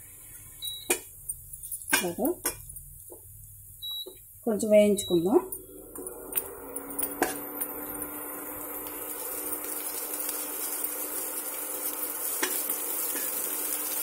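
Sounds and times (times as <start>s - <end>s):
rice sizzling in pan: 5.7s - 14.0s.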